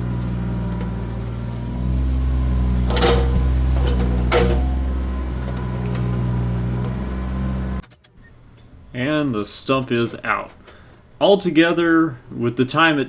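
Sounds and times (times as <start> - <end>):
excavator diesel engine running: 0.0 - 7.8
sharp knocks: 2.9 - 4.9.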